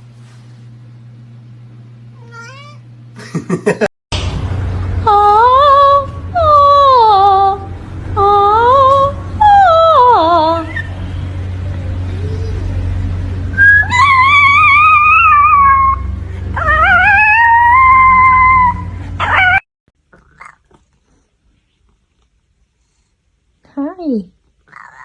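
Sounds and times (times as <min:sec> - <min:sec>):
cat meowing: 0:02.2 - 0:02.9.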